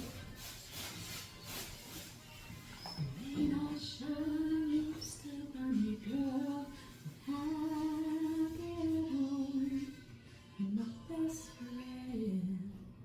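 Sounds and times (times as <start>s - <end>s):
woman singing unaccompanied: 3.0s - 13.0s.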